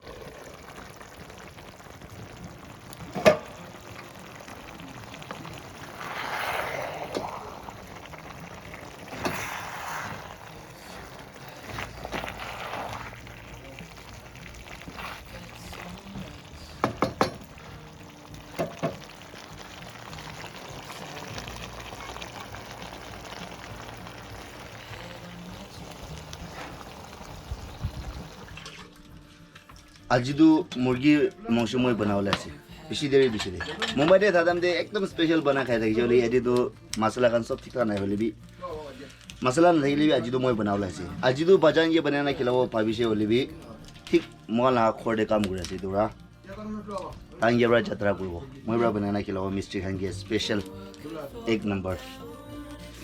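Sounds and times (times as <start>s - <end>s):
water pouring: 0.0s - 30.2s.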